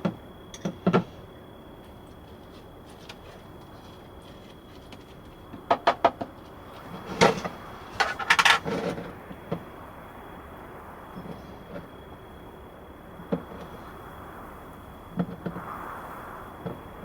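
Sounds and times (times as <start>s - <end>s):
kitchen things clicking and clattering: 2.3s - 9.0s
knock: 5.5s - 6.4s.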